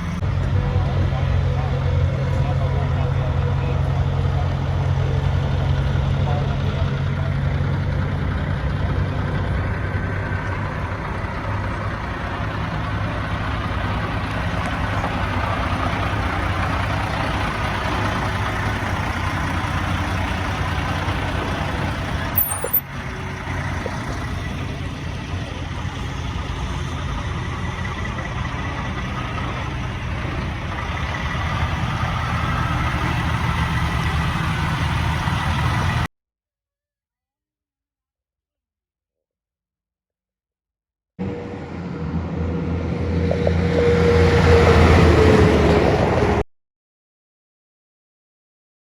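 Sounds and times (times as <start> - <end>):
truck diesel engine running: 0.0 - 36.1
sharp click: 22.4 - 22.8.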